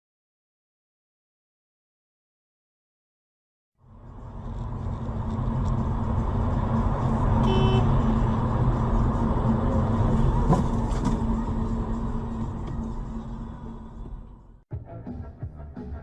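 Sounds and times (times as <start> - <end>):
car engine and road noise: 3.8 - 14.6.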